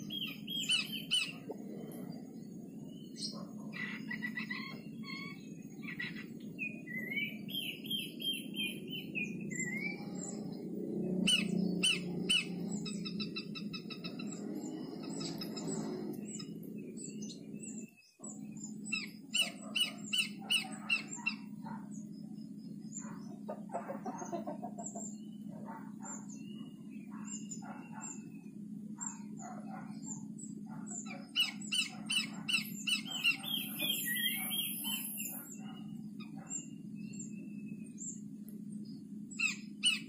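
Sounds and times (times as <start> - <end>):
low background hum: 0.0 - 40.0
small songbirds chirping: 0.0 - 40.0.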